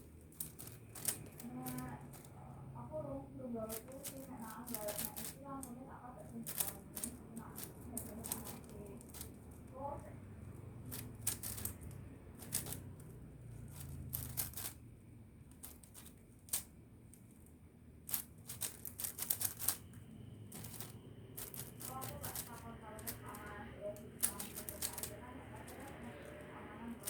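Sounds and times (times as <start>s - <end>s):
puzzle cube clicking: 0.4s - 2.3s, 3.7s - 5.8s, 10.9s - 14.8s, 18.1s - 19.9s, 20.5s - 26.4s.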